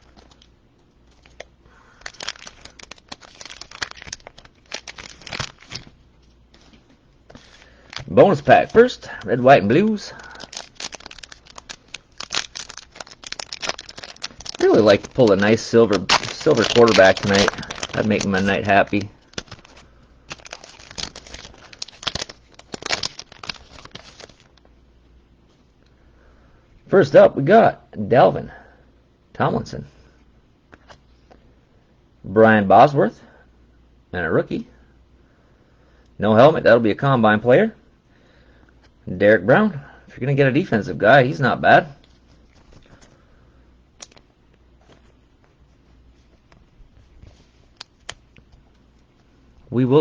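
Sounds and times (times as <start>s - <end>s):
plastic wrapper crinkling and tearing: 0.0s - 24.7s, 42.0s - 43.2s, 44.0s - 49.3s.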